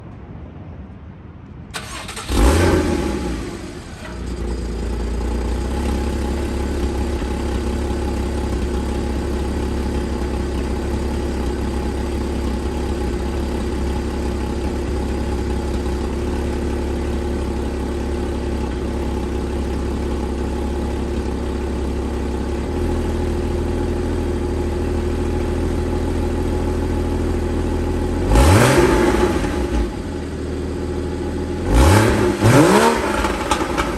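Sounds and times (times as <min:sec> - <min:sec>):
car engine starting and idling: 0:01.7 - 0:33.9.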